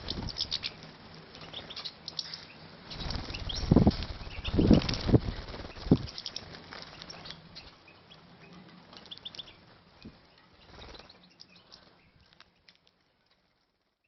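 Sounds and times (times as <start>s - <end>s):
finches fluttering wings: 0.0s - 7.8s, 8.6s - 13.6s.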